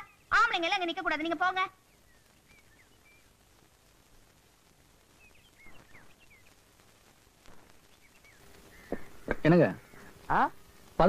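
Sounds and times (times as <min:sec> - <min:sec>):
faint bird chirps: 0:00.0 - 0:03.6, 0:05.0 - 0:06.9, 0:07.5 - 0:10.6
background hiss: 0:00.0 - 0:11.0.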